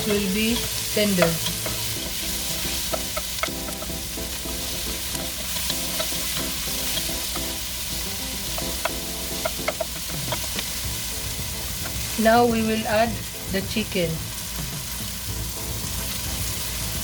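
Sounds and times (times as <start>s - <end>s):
utensil clicking against pan: 0.0s - 4.0s, 5.1s - 7.6s, 8.5s - 10.8s
vegetables sizzling in oil: 0.0s - 17.0s.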